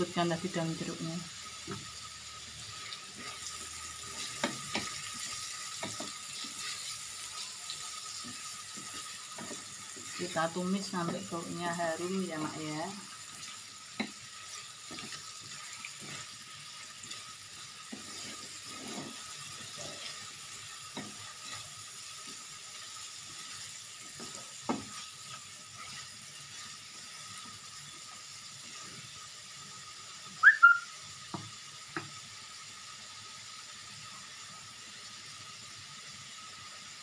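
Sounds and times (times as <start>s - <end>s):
spice paste sizzling in oil: 0.0s - 37.0s
spatula scraping and knocking pan: 3.2s - 7.4s, 8.0s - 11.4s, 13.9s - 16.4s, 17.8s - 22.5s, 23.2s - 26.8s
short high squeaks: 30.4s - 30.9s.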